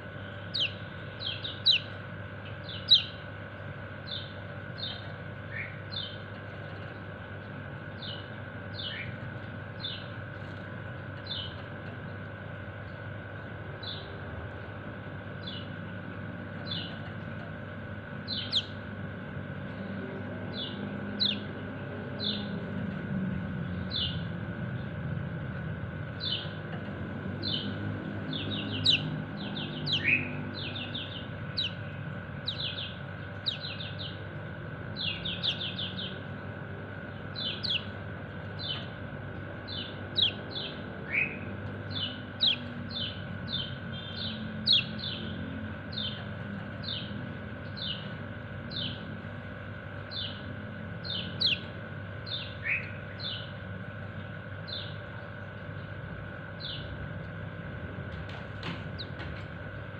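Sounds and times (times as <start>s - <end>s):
steady hum: 0.0s - 59.9s
bird chirping calls: 0.2s - 3.3s, 4.0s - 11.7s, 18.2s - 18.9s, 19.7s - 22.7s, 26.1s - 34.3s, 34.9s - 49.2s, 50.0s - 53.6s, 58.3s - 59.5s.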